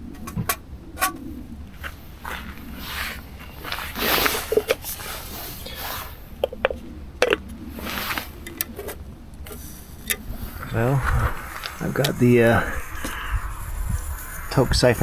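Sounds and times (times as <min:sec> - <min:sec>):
sharp clicks and light knocks: 0:00.1 - 0:02.0
gear rustling and scraping: 0:00.1 - 0:15.0.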